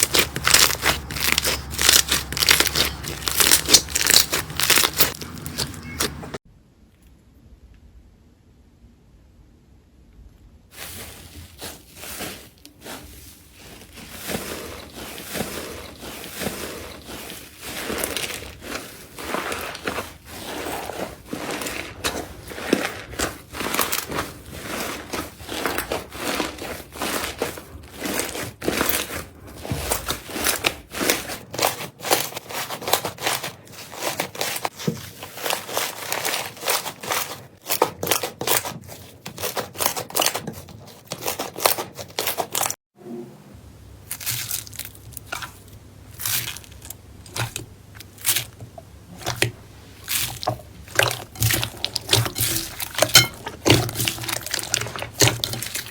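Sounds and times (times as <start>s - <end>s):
slime squeezed by hand crackling: 0.0s - 6.2s.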